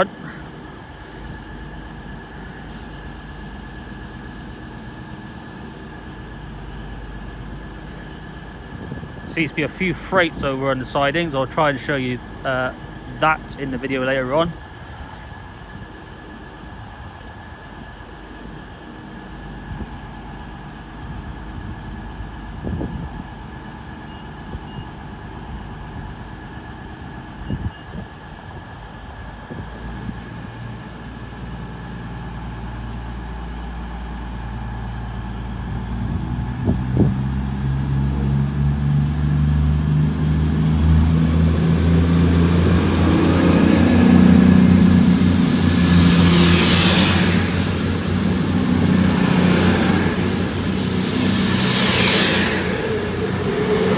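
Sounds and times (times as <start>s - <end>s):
diesel train engine revving: 0.0s - 53.9s
burst of hiss: 45.0s - 53.9s.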